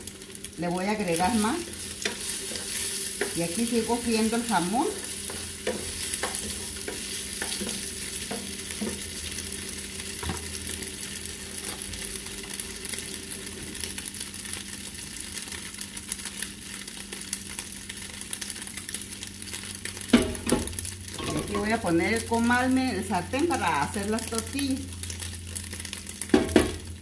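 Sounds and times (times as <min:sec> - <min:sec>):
ham sizzling in oil: 0:00.0 - 0:27.0
spatula scraping and tapping: 0:02.0 - 0:09.1.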